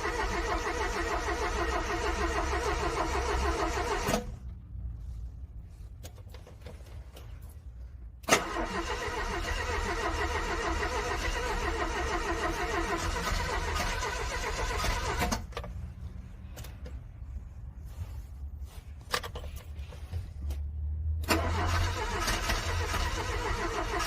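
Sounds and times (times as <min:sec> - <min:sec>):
car engine cranking: 0:00.0 - 0:04.4, 0:08.2 - 0:17.0, 0:21.2 - 0:24.0.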